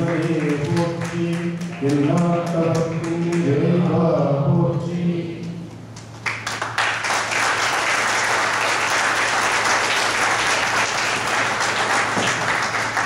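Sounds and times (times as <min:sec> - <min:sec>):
audience applauding: 0:00.0 - 0:03.5, 0:06.0 - 0:13.0.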